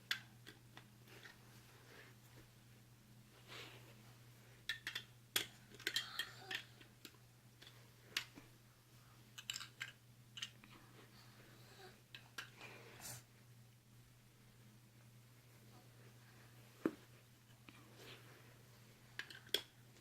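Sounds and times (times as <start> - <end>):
toy pieces clicking and knocking: 4.7 - 8.3, 9.4 - 10.6.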